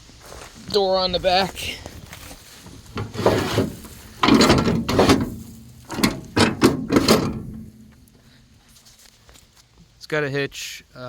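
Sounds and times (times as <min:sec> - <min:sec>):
steel door scraping: 0:02.6 - 0:08.0.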